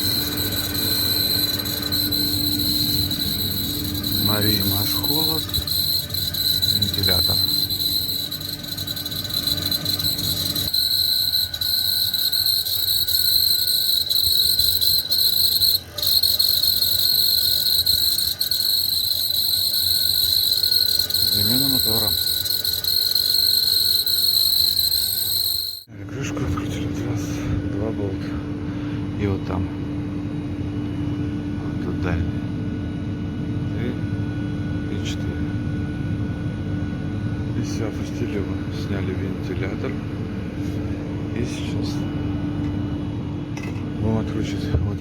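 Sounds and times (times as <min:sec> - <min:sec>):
low hum: 0:00.0 - 0:25.9
high-pitched fan whistle: 0:00.0 - 0:26.0, 0:33.7 - 0:44.8.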